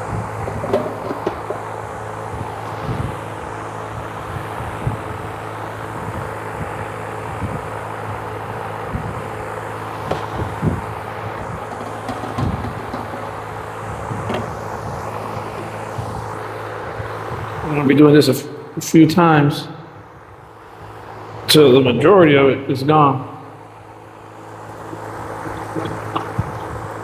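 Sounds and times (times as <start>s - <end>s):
machine hum: 0.0s - 27.0s
handling knocks and clatters: 0.5s - 1.7s, 11.3s - 13.5s, 24.9s - 26.8s.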